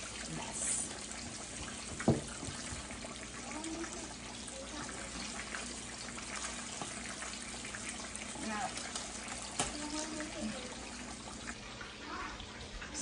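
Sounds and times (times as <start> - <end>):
chicken frying in oil: 0.0 - 13.0.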